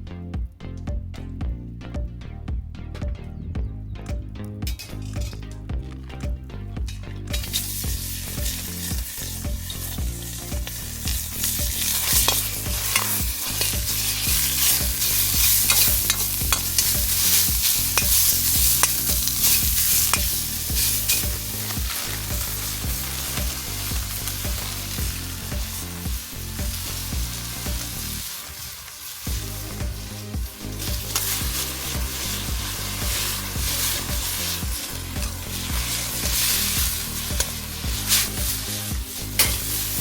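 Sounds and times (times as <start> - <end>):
food sizzling in a wok: 7.3 - 40.0
spatula scraping pan: 11.3 - 24.6.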